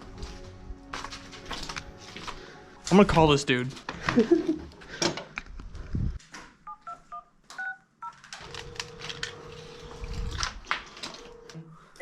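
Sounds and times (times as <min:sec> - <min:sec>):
phone keypad beeps: 0:06.7 - 0:07.8.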